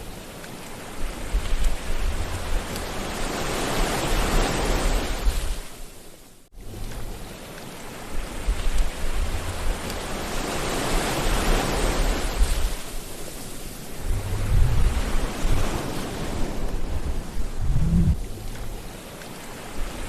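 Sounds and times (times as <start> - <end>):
sea waves breaking on shore: 0.0 - 20.0
low rumble of wave: 13.6 - 19.1.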